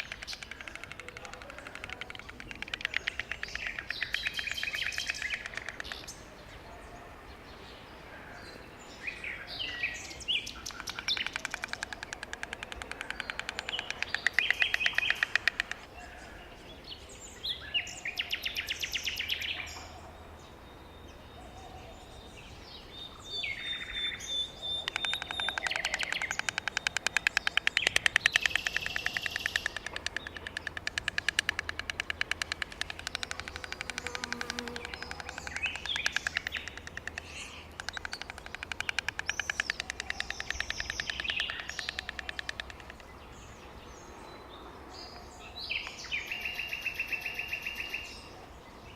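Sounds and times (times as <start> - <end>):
stork bill clattering: 0.0 - 6.1, 24.8 - 43.1
small birds chirping: 0.0 - 48.9.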